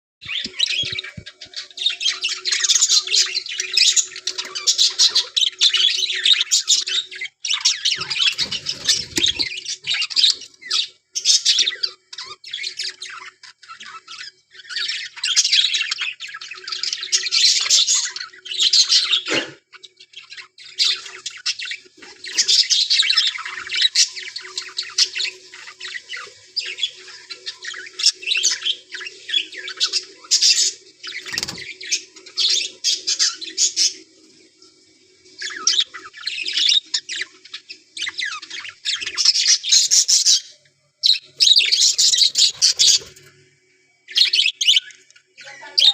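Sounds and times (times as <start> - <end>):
budgerigars chattering and warbling: 0.2 - 34.2, 35.3 - 43.3, 44.1 - 45.9.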